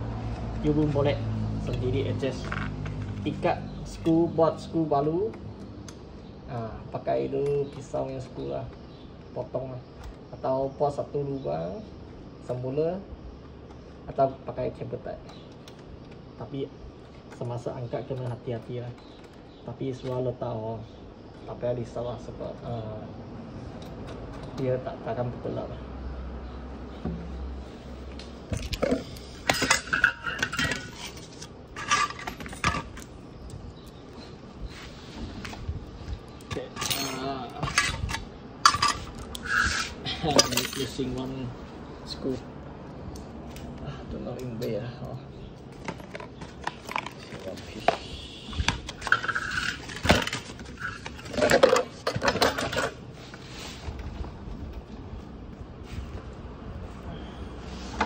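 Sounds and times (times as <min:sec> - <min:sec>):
metal tools clinking: 0:28.5 - 0:34.4, 0:36.2 - 0:41.5, 0:44.3 - 0:48.0, 0:48.7 - 0:53.0
light scraping: 0:36.6 - 0:41.0.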